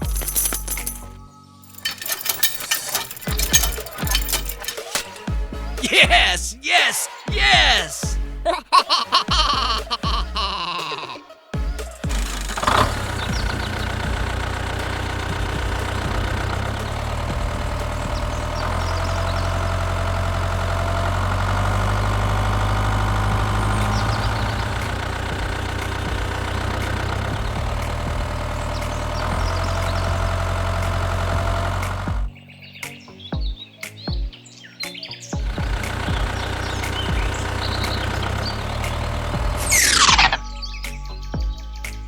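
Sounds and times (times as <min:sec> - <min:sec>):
small tractor engine running: 0:00.0 - 0:05.8, 0:11.6 - 0:32.3, 0:35.4 - 0:41.2.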